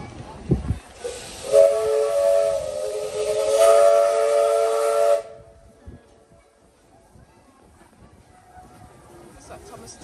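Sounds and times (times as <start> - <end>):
loud steam hiss: 0.7 - 5.4
steam locomotive chime whistle: 1.0 - 5.4.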